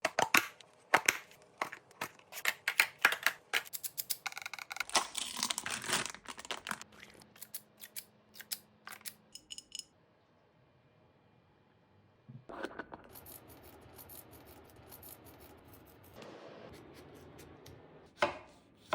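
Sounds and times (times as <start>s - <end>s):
sharp clicks and taps of containers: 0.0s - 5.0s.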